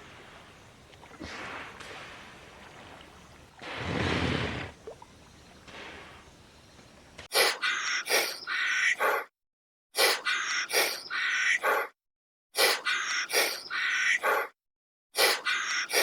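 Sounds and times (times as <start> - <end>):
bird call: 0.0 - 9.2.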